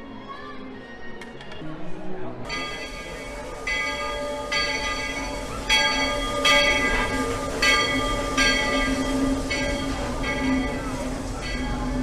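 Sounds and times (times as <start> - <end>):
locomotive bell ringing: 2.5 - 12.0.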